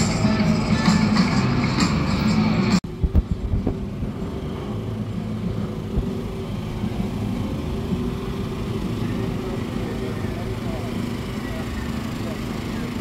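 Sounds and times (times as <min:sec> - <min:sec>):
background music: 0:00.0 - 0:02.9
vehicle engine running: 0:00.0 - 0:13.0
low bumps: 0:00.2 - 0:09.2.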